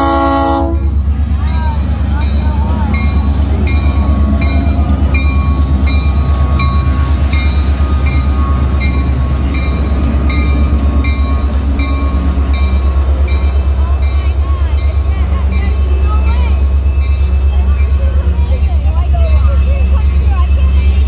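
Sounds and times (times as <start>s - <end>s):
diesel locomotive rumbling past: 0.0s - 21.0s.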